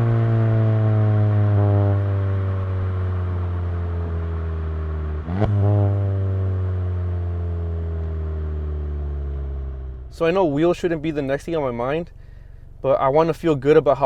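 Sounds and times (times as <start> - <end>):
car engine revs falling: 0.0 - 10.2.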